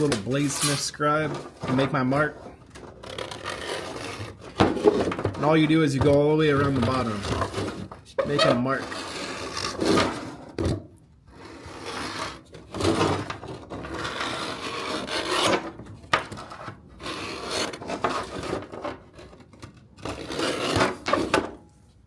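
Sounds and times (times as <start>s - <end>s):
metal scribe scraping a shell: 0.0s - 1.0s.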